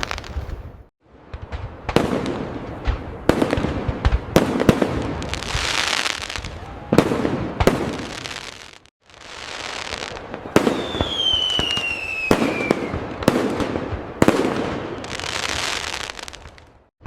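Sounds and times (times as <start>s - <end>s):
fireworks bangs: 0.0s - 16.9s
fireworks crackling: 0.0s - 16.9s
falling whistle: 10.7s - 13.0s.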